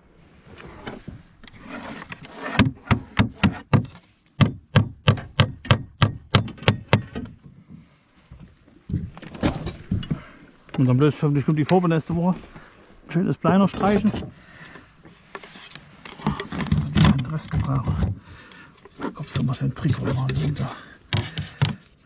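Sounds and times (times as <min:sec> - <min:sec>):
hammer driving nails: 0:02.5 - 0:07.3.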